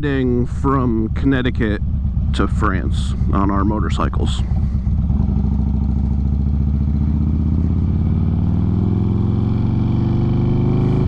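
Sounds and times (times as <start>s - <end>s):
motorcycle engine accelerating: 0.1s - 11.0s.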